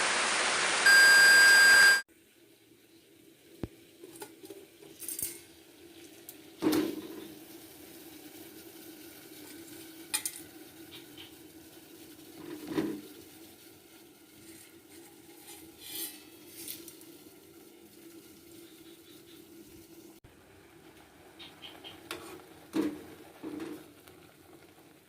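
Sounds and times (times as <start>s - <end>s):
pots and utensils clinking: 4.0s - 5.6s, 10.1s - 11.4s, 14.4s - 17.1s.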